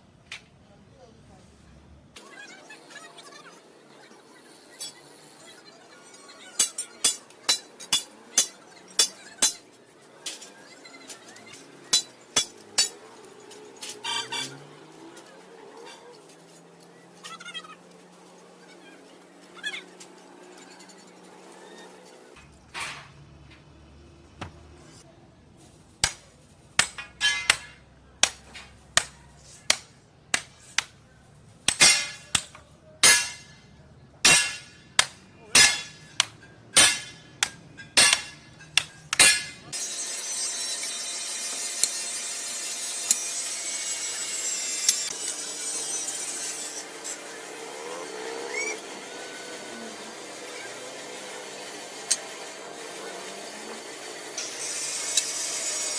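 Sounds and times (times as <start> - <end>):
power tool running: 39.7 - 55.9.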